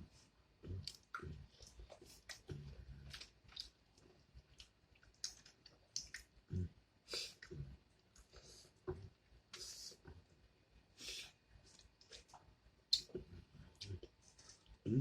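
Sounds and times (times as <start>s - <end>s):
person chewing: 0.7s - 6.3s
wet mouth clicks: 5.1s - 6.3s, 12.9s - 13.2s.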